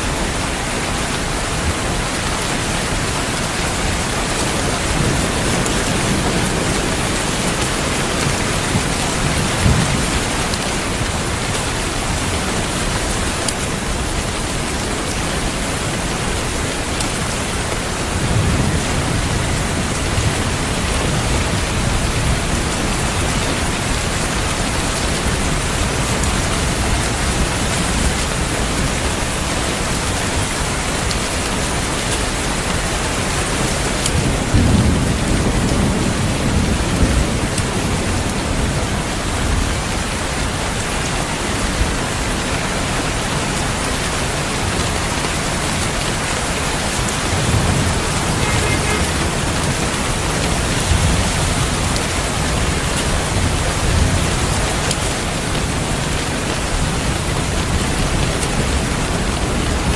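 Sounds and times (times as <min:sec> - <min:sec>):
heavy rain: 0:00.0 - 0:59.9
thunder rumbling: 0:45.5 - 0:59.8.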